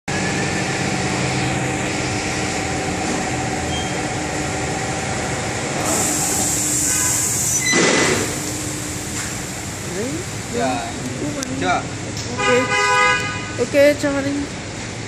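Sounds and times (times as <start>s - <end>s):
machine humming: 0.1s - 12.2s
high hiss: 5.8s - 10.8s.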